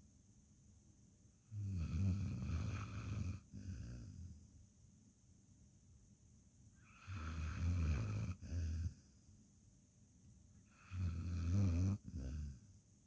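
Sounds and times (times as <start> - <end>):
dog snoring: 1.5 - 4.3, 6.8 - 9.0, 10.7 - 12.6.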